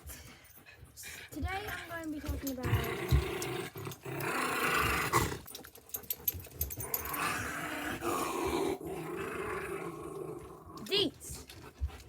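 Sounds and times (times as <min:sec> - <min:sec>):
dog growling: 0:02.3 - 0:05.7, 0:06.7 - 0:11.6.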